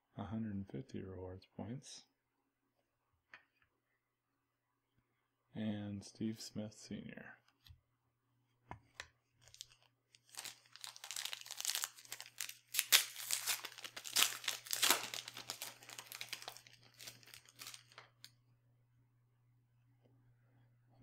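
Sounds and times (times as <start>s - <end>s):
wrapper tearing and crinkling: 9.4s - 18.3s.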